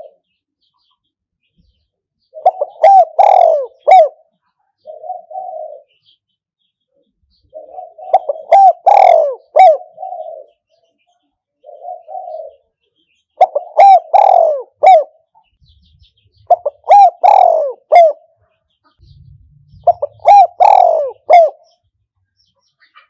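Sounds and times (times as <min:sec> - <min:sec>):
dove cooing: 0:02.3 - 0:06.0, 0:07.5 - 0:10.6, 0:11.6 - 0:12.6, 0:13.4 - 0:15.2, 0:16.3 - 0:18.4, 0:19.0 - 0:21.8.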